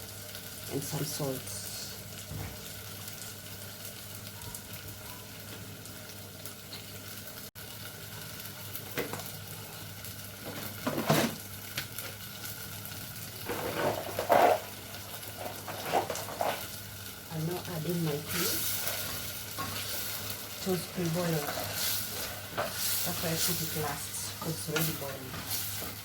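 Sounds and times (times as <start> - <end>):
beef sizzling in a pan: 0.0 - 26.0
cookware clattering and scraping: 10.5 - 11.4, 13.4 - 14.7, 15.3 - 16.7.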